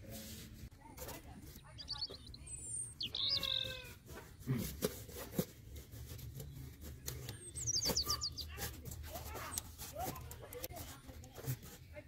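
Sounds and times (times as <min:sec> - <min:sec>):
small birds chirping: 0:01.2 - 0:04.1, 0:05.8 - 0:12.0.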